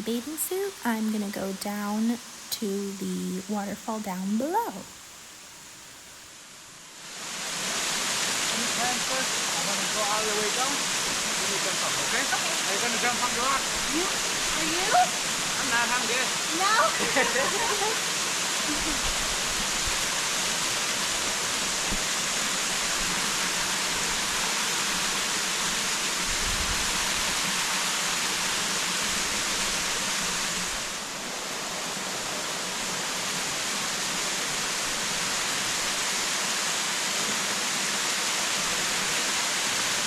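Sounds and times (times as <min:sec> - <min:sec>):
waterfall roaring: 0:07.1 - 0:40.0.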